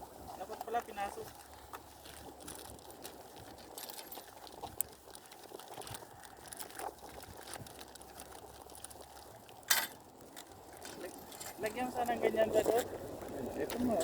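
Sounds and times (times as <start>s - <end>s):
small clicks of gear handled: 0.6s - 11.8s.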